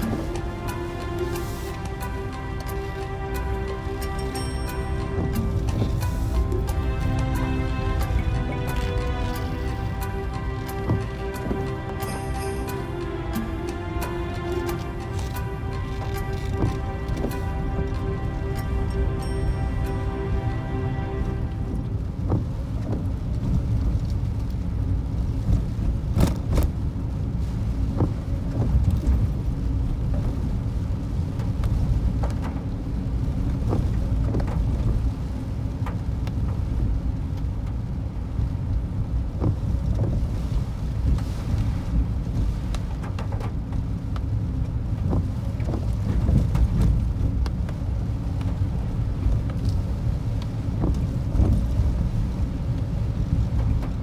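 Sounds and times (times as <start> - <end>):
crackles and knocks: 0.0 - 32.8, 39.3 - 54.0
rough sea: 0.0 - 54.0
strong wind buffeting microphone: 13.0 - 54.0.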